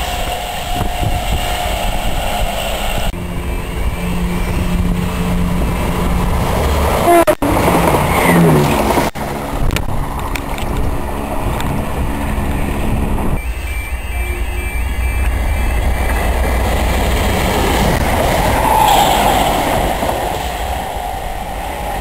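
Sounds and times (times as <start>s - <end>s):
train rumbling: 0.0s - 22.0s
faint two-tone beep: 13.4s - 16.1s.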